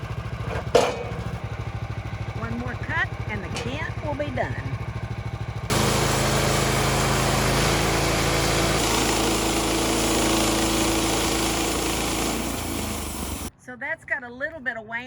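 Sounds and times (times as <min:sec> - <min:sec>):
bandsaw sawmill cutting log: 0:05.7 - 0:13.5.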